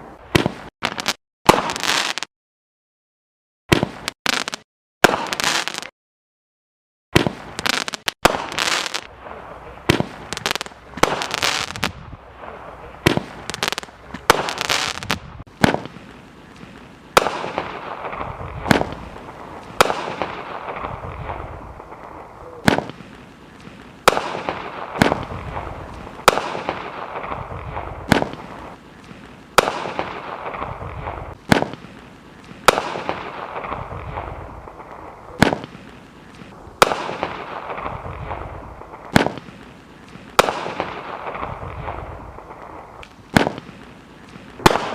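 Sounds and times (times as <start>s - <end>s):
firework hiss: 9.8s - 34.8s.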